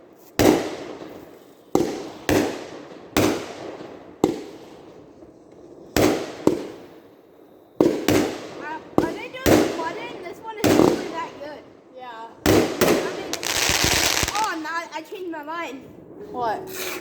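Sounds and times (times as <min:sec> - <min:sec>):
fireworks bangs: 0:07.8 - 0:11.6, 0:12.4 - 0:15.1.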